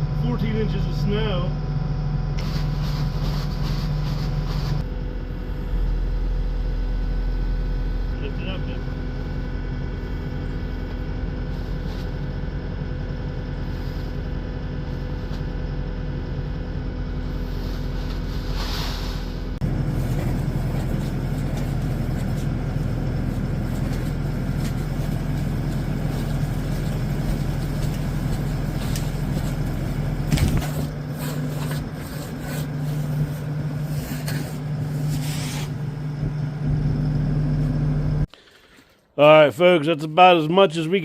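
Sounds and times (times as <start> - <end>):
motor humming: 19.2 - 38.3.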